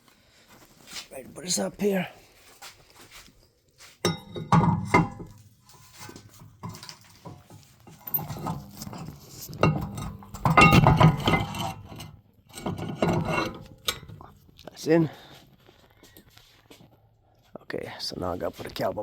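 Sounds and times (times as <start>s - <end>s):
metal brake parts clanking: 4.1s - 14.3s.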